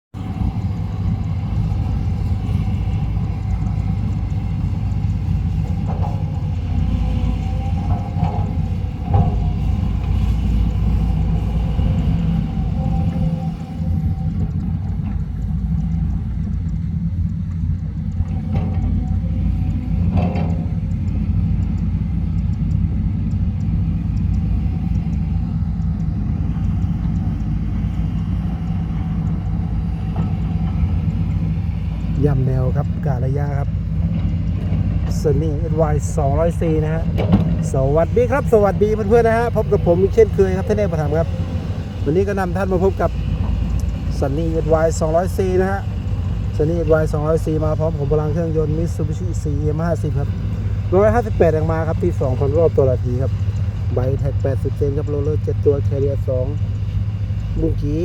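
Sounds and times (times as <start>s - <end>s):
excavator diesel engine running: 0.1s - 58.0s.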